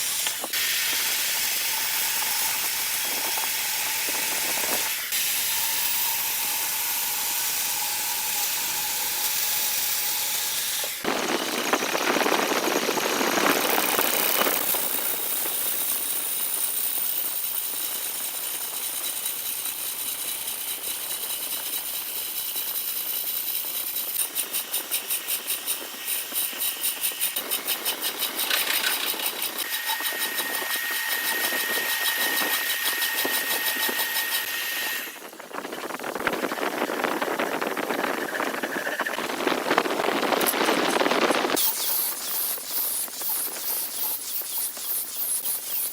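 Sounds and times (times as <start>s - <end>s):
tool cutting spinning wood: 0.0s - 45.9s
wood lathe whine: 0.0s - 45.9s.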